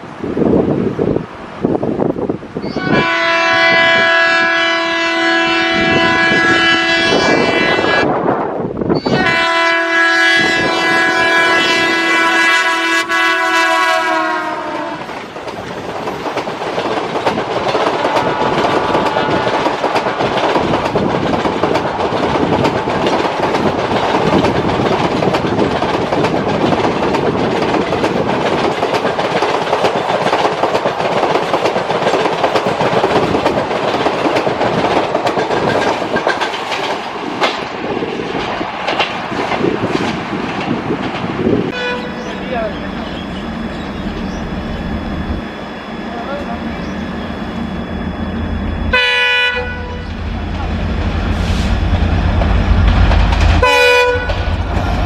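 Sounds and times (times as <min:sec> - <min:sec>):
train rumbling past: 0:00.0 - 0:55.0
train horn: 0:02.6 - 0:08.2, 0:08.9 - 0:15.2, 0:17.9 - 0:19.8, 0:41.7 - 0:42.3, 0:48.9 - 0:50.2, 0:53.6 - 0:54.5
wheels clacking over rail joints: 0:14.7 - 0:44.4.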